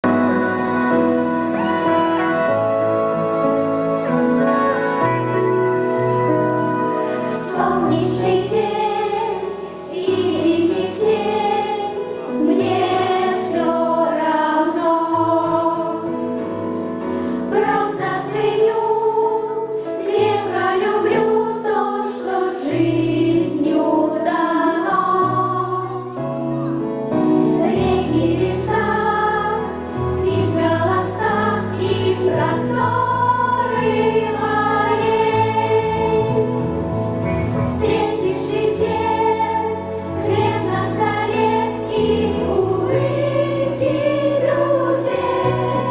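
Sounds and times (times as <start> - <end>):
instrumental backing track: 0.0 - 11.6
vocal ensemble singing: 6.4 - 26.4, 27.1 - 45.9.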